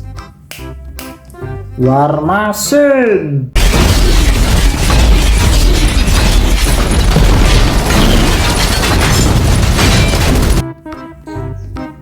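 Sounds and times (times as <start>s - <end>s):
explosions and booms: 3.6s - 10.6s.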